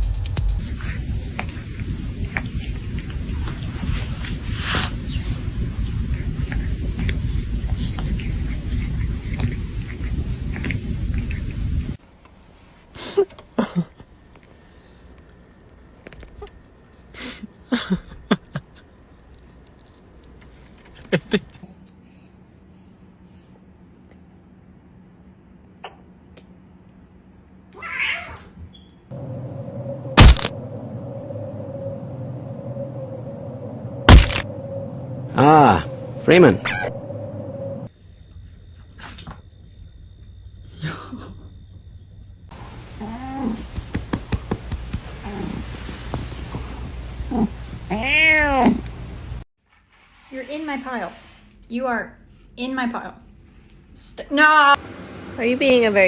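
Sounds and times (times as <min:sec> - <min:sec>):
cat calling: 0:47.3 - 0:48.9.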